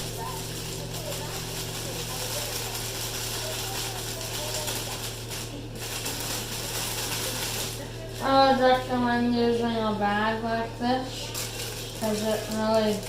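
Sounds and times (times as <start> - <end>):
plastic bag crinkling rattle: 0.0 - 8.8, 11.2 - 13.0
steady low hum: 0.0 - 13.0.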